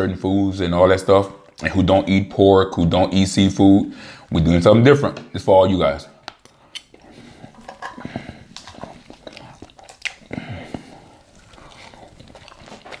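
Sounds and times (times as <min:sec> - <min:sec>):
wet mouth clicks: 0:06.3 - 0:07.1, 0:08.1 - 0:13.0
chewing and crunching salad: 0:06.3 - 0:13.0.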